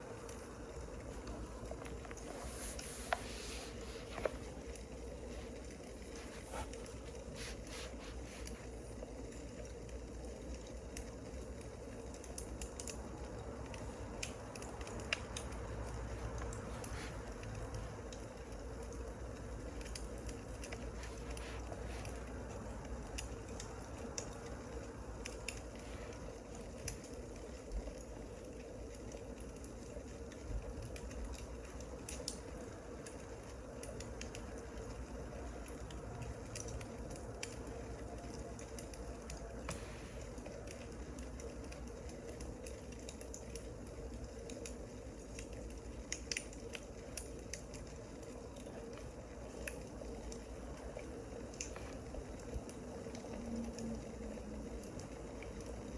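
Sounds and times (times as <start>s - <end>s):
fire hissing: 0.0s - 9.2s, 39.5s - 41.6s
wood fire crackling and popping: 0.0s - 55.9s.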